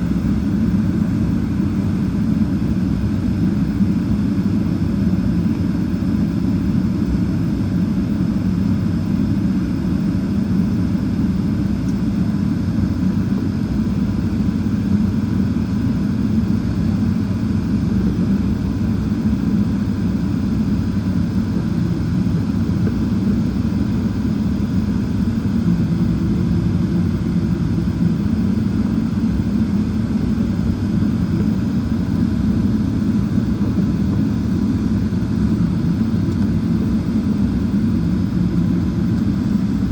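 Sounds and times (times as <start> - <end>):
jet engines low rumble: 0.0 - 39.9.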